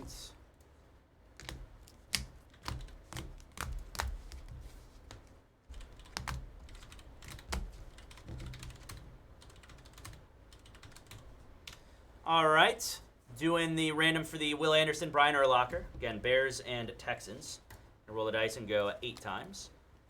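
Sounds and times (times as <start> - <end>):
typing on a computer keyboard: 1.4 - 11.8.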